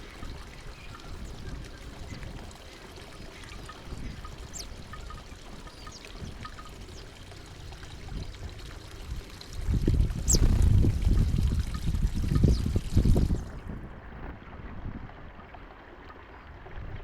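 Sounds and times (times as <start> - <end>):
songbirds chirping: 0.0 - 7.9, 10.3 - 10.6.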